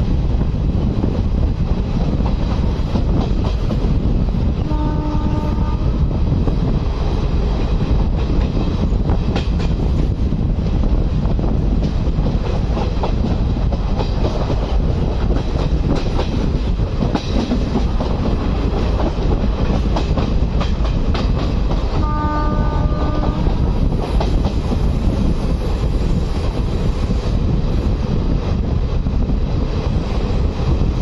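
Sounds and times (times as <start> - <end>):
train coach rumble: 0.0 - 31.0
wind: 0.0 - 31.0
train horn: 4.6 - 6.1, 22.0 - 23.8.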